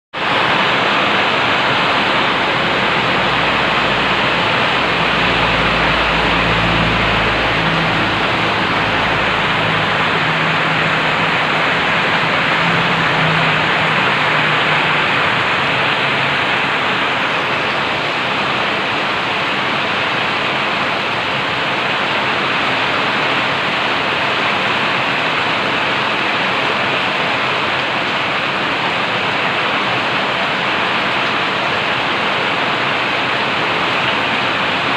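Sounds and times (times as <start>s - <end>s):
heavy rain pouring: 0.1s - 34.9s
faint low drone: 2.4s - 16.3s.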